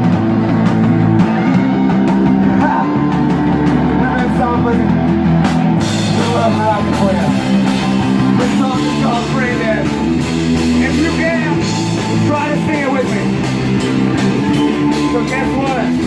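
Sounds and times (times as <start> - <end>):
electric guitar melody: 0.0 - 16.0
rock band playing live: 0.0 - 16.0.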